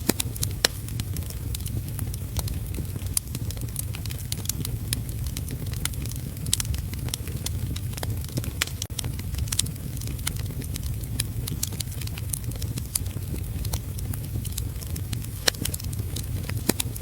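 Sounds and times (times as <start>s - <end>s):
low fire rumble: 0.0s - 17.0s
wood fire crackling and popping: 0.0s - 17.0s.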